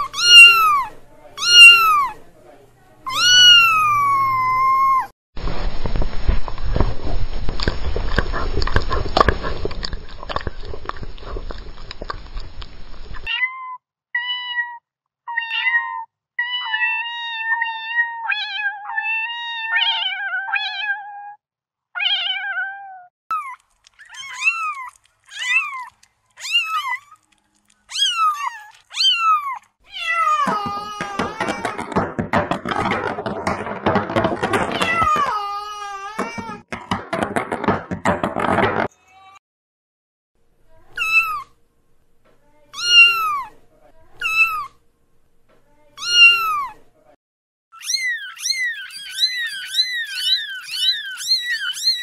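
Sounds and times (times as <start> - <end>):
kitten mewing: 0.0 - 2.2, 3.1 - 5.1, 23.3 - 32.0, 40.9 - 41.5, 42.7 - 43.5, 44.2 - 44.8, 46.0 - 46.8, 47.8 - 52.0
tap running: 5.8 - 13.3, 30.4 - 35.5, 36.2 - 38.9.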